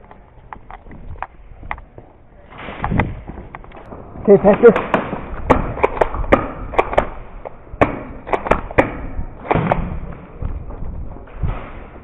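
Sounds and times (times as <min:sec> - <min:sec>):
airsoft gunfire cracks: 0:07.8 - 0:10.0.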